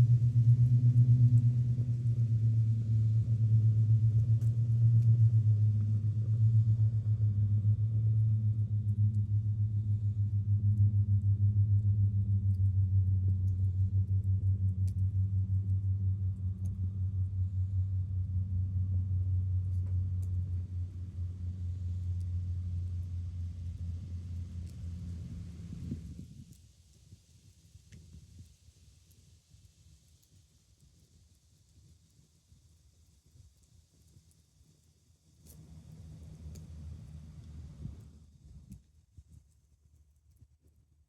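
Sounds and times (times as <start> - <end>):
low engine-like rumble: 0.0 - 26.6, 35.5 - 38.8
faint ticks: 3.7 - 5.2, 12.5 - 16.9, 30.0 - 40.8.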